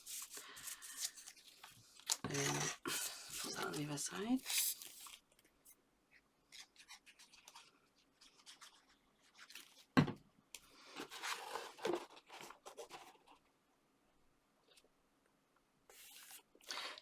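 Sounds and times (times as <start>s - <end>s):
paper rustling and scraping: 0.0s - 5.2s, 10.9s - 13.4s, 15.9s - 16.5s.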